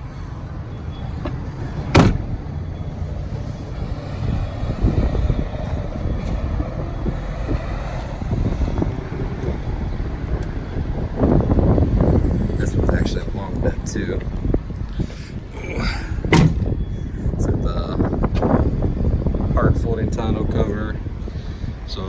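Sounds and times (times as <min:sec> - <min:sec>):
low outdoor rumble: 0:00.0 - 0:22.0
truck door shutting: 0:00.9 - 0:06.6, 0:15.0 - 0:16.9.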